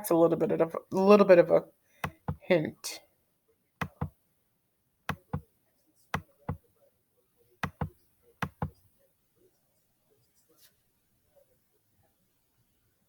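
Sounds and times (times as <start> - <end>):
computer mouse clicking: 3.8 - 4.1, 7.6 - 8.8.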